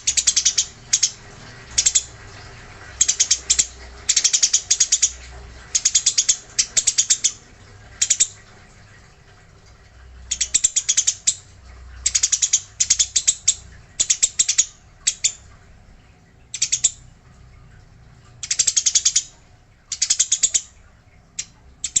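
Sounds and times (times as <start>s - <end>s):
sparrow rattling chirps: 0.0s - 1.2s, 1.8s - 2.1s, 5.8s - 7.4s, 10.3s - 11.4s, 12.0s - 15.4s.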